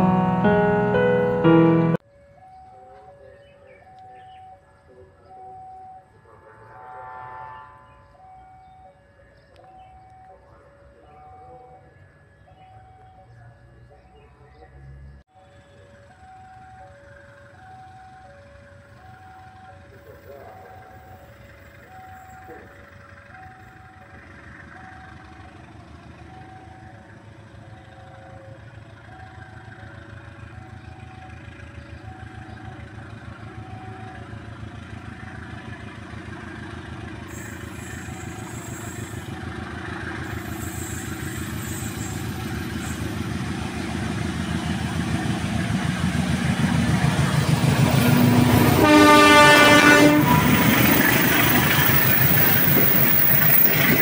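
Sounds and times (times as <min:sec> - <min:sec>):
train horn: 0:00.0 - 0:02.0, 0:06.2 - 0:08.2, 0:47.8 - 0:51.3
two-tone level crossing signal: 0:00.0 - 0:02.0
train rumbling: 0:19.9 - 0:54.0
train wheels clattering on rails: 0:50.1 - 0:54.0.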